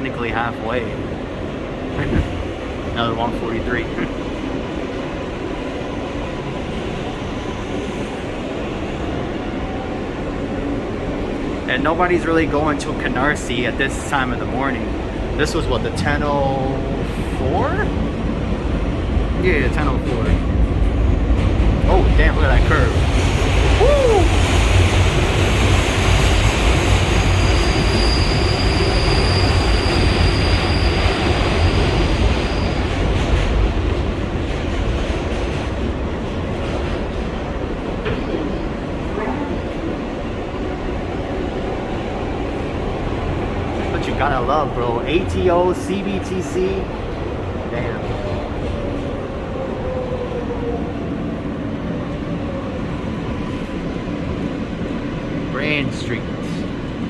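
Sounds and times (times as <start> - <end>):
train wheels rumbling on rails: 0.0 - 57.0
high-pitched wheel squeal: 27.3 - 32.8.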